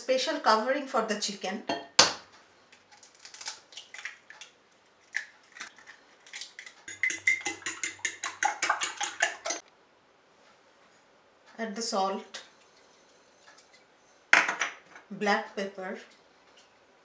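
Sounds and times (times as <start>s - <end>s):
utensil clinking against bowl: 6.8s - 9.6s.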